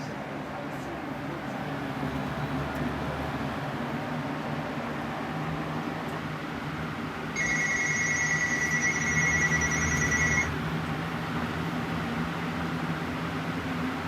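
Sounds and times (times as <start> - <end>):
box fan running: 0.0 - 14.0
high steady tone: 7.4 - 10.5.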